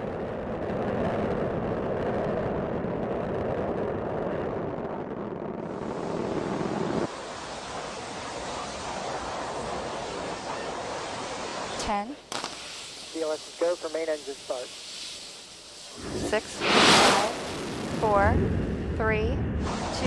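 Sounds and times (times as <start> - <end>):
rocket engines rumbling: 0.0 - 20.0
hissy steady noise: 6.9 - 17.5.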